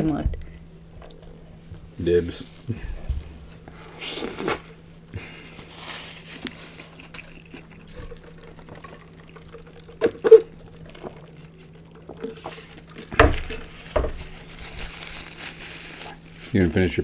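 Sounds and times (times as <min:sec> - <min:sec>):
rustling: 0:00.0 - 0:10.0, 0:10.8 - 0:17.0
low hum: 0:00.0 - 0:16.5
wet mouth noises: 0:00.4 - 0:13.2.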